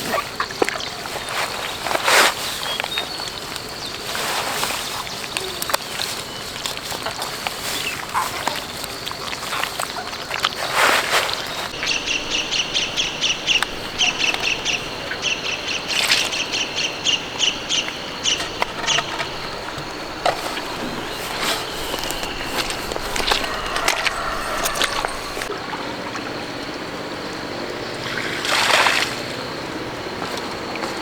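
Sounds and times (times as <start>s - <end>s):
bird chirping: 11.8s - 25.5s.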